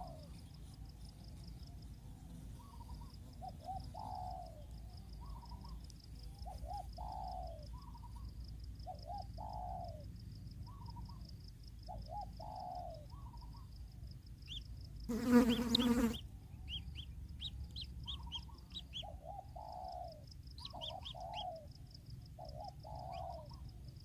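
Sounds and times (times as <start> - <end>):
dove cooing: 2.6 - 4.6, 6.4 - 8.2, 8.9 - 10.0, 18.0 - 21.7, 22.4 - 23.6.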